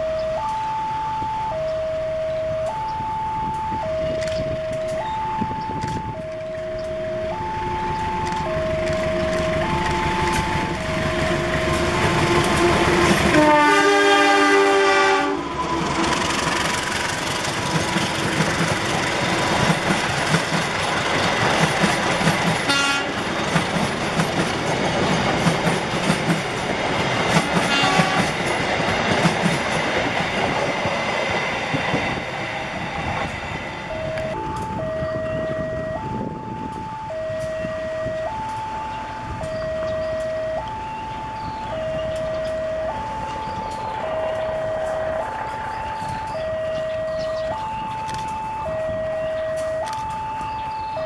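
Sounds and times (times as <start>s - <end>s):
train running noise: 0.0s - 51.0s
train horn blast: 9.3s - 16.8s, 22.6s - 23.2s, 27.6s - 28.5s
wheels clacking over rail joints: 15.5s - 34.8s.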